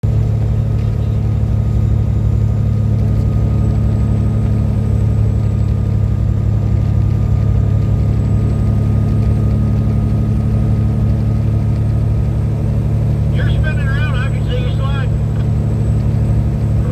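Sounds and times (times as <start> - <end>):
truck engine drone and road noise: 0.0 - 16.9
faint whine: 11.1 - 16.9.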